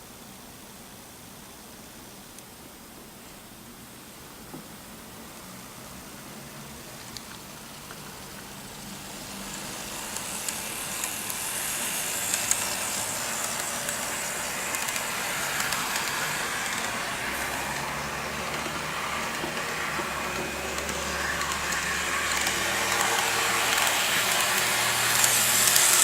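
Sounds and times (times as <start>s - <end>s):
model train rolling on track: 4.4s - 26.0s
wheels clicking over rail joints: 7.0s - 26.0s.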